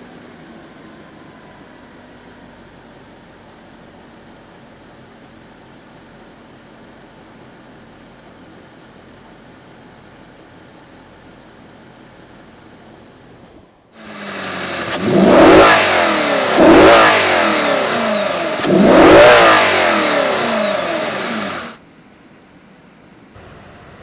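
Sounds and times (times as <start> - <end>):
car engine revving: 14.0 - 21.8.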